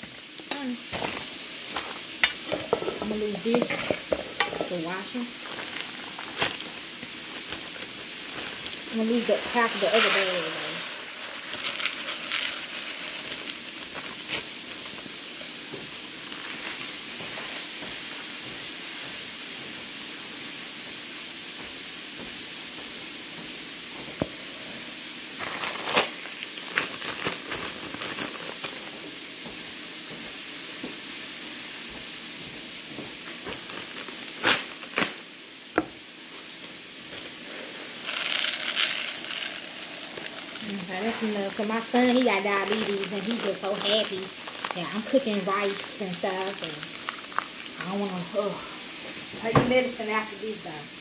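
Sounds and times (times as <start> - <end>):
plastic bag rustling: 0.0 - 17.7, 25.4 - 29.2, 33.2 - 35.2, 37.1 - 50.0
meat sizzling in a frying pan: 0.0 - 51.0.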